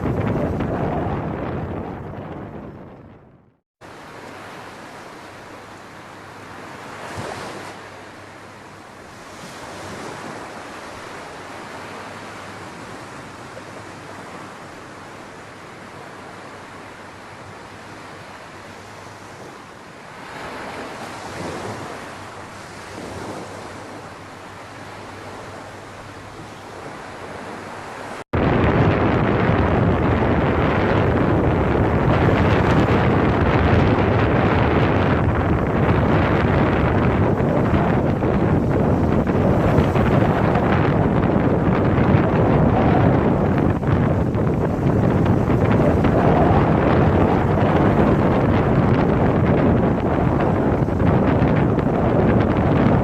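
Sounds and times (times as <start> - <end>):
steady rushing noise: 28.4 - 53.0.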